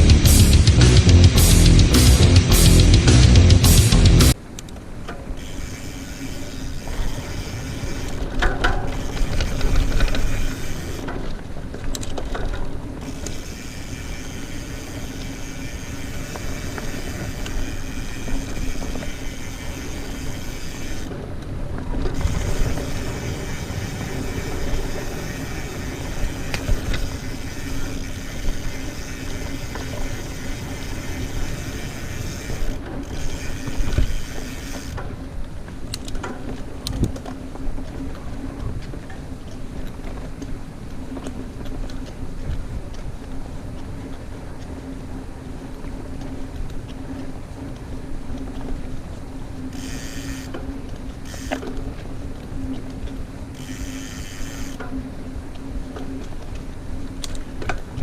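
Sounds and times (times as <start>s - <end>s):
low rumble: 0.0s - 4.4s
mountain bike tyre noise: 0.0s - 58.0s
chain and drivetrain rattle: 5.1s - 35.2s, 52.9s - 55.0s.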